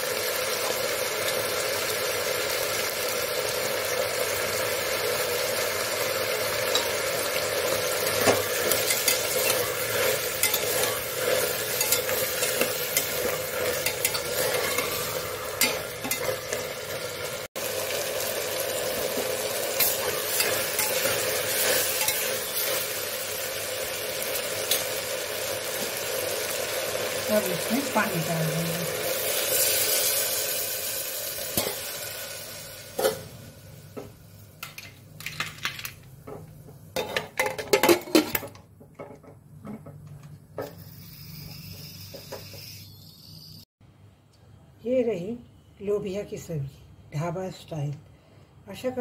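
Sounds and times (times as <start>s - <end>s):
vegetables sizzling in oil: 0.0s - 38.4s, 40.1s - 43.7s
spoon scraping metal pot: 8.0s - 16.7s, 19.8s - 22.9s.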